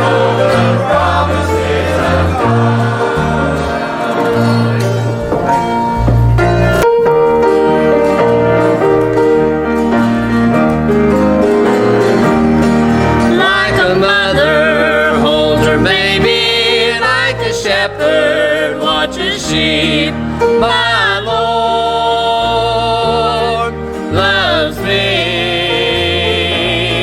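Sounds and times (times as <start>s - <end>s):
country instrumental accompaniment: 0.0s - 27.0s
person singing with vibrato: 13.3s - 27.0s.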